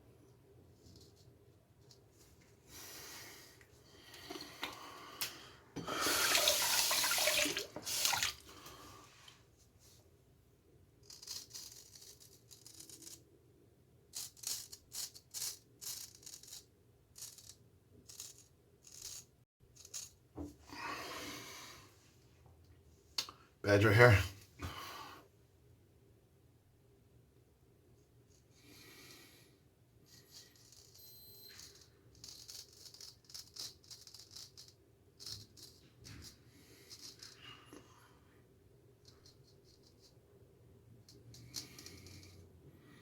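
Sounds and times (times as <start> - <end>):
tap water running into sink: 5.8 - 8.4.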